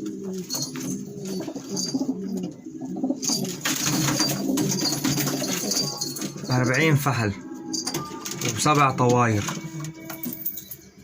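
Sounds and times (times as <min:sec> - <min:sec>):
pigeons cooing: 0:00.0 - 0:06.6.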